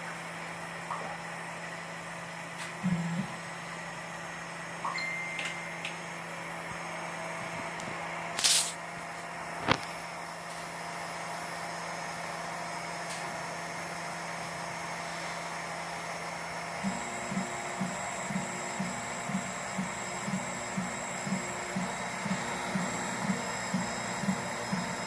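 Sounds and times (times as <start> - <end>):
printer motors and fans humming: 0.0 - 25.0
short hiss: 8.4 - 8.8.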